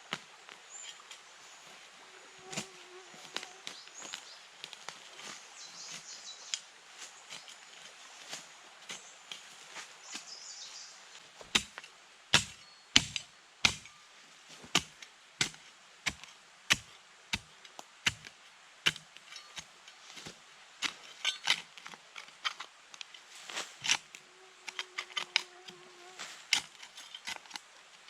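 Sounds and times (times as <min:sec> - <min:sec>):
firewood being chopped: 0:11.4 - 0:14.0, 0:14.7 - 0:22.6.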